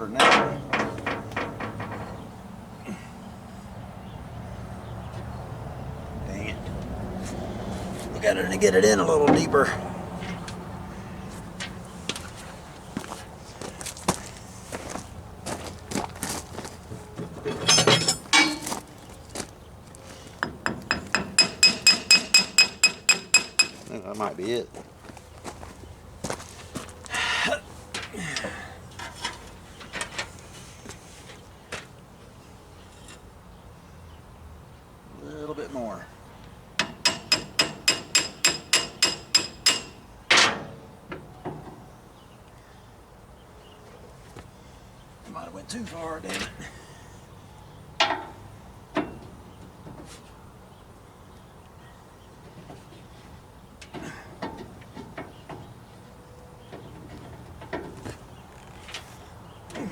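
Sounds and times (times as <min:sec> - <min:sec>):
metal tools clinking and knocking: 0:00.0 - 0:02.4, 0:17.2 - 0:19.0, 0:20.4 - 0:23.9, 0:36.8 - 0:40.6
hammer striking metal: 0:20.4 - 0:23.9, 0:36.8 - 0:40.0
quick ringing taps: 0:20.4 - 0:23.9.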